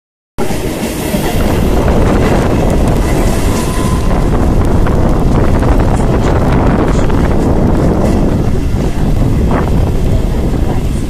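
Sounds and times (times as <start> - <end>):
train wheels rumbling on rail: 0.4 - 11.0.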